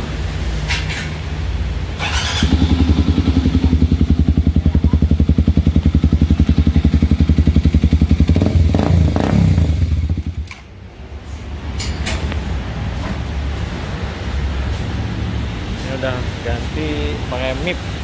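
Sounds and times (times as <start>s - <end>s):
motorcycle engine idling: 2.0s - 10.7s.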